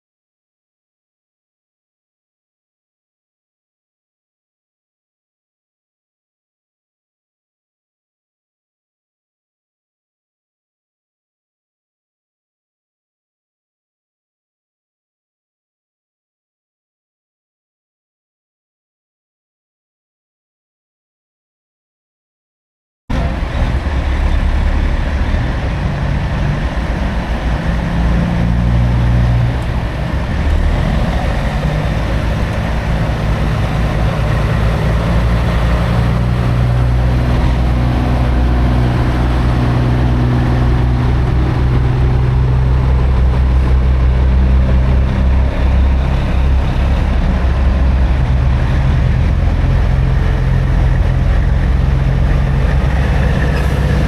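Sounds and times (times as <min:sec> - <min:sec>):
road noise: 0:23.1 - 0:54.0
truck diesel engine droning: 0:23.1 - 0:54.0.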